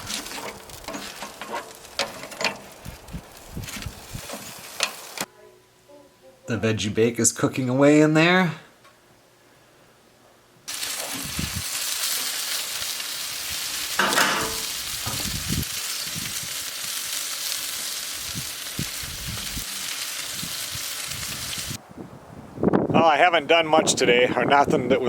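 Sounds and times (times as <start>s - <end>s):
chicken sizzling with pops: 0.0s - 5.3s, 10.7s - 21.8s.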